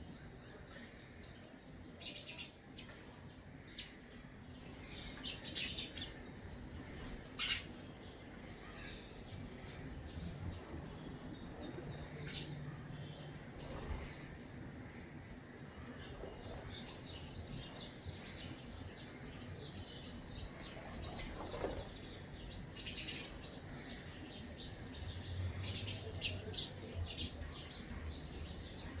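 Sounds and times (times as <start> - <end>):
small bird chirping: 4.6 - 9.3.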